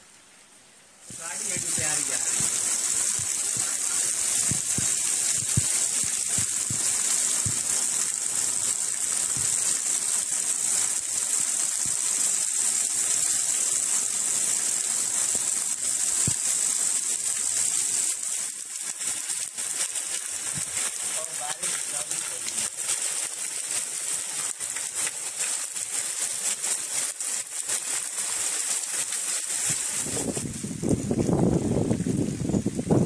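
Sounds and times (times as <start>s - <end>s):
heavy rain: 0.0s - 33.0s
drops splashing into puddle: 1.1s - 13.6s
water gushing from drain spout: 1.1s - 32.2s.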